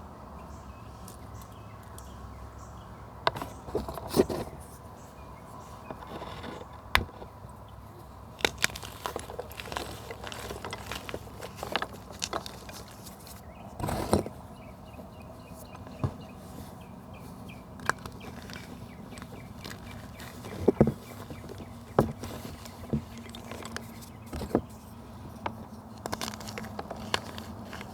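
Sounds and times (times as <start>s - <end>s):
dry material crunching and snapping: 8.2s - 14.7s, 17.5s - 27.9s.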